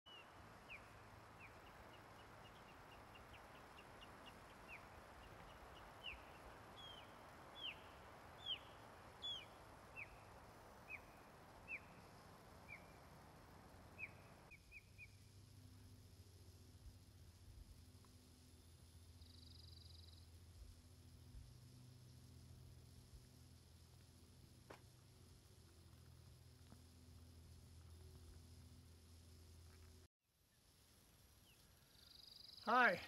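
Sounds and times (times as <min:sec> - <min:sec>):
bird chirping downward: 0:00.1 - 0:10.3
faint steady hiss: 0:00.1 - 0:33.0.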